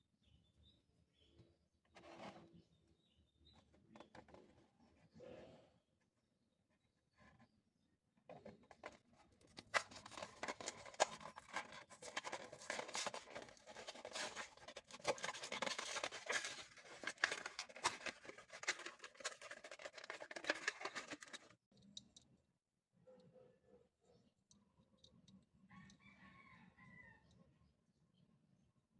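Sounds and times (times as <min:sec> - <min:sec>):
packaging crinkling and tearing: 0:09.6 - 0:21.5.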